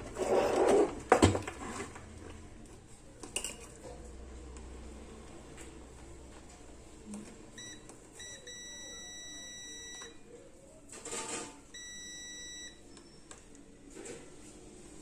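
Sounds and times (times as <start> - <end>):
rustling scrape: 0.0 - 2.1
multimeter beeps: 7.6 - 10.2, 11.7 - 13.3.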